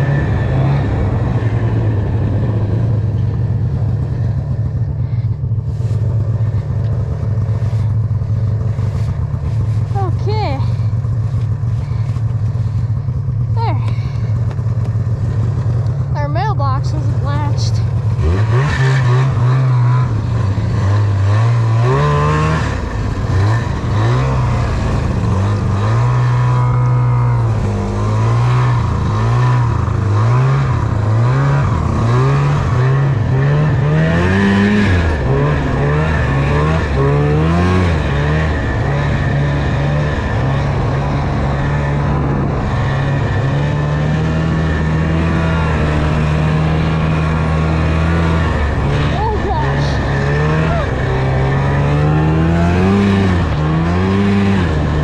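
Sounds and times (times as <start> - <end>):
snowmobile engine revving: 0.0 - 55.0.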